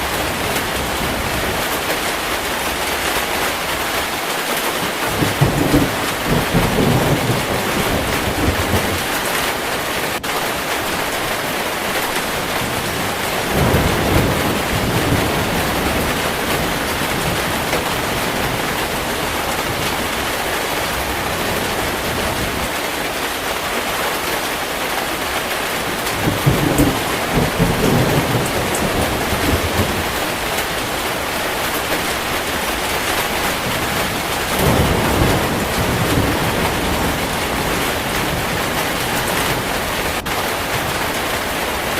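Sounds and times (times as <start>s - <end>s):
heavy rain falling: 0.0s - 41.9s
thunder rolling: 5.0s - 22.7s, 25.8s - 41.4s.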